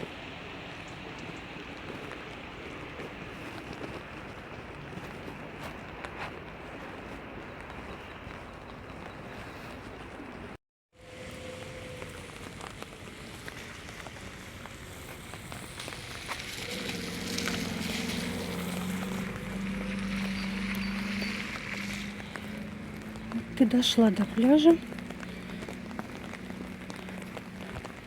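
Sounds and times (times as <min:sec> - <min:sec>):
rain drops ticking: 0:00.0 - 0:28.0
rain hiss: 0:11.0 - 0:28.0
low motor hum: 0:11.1 - 0:28.0.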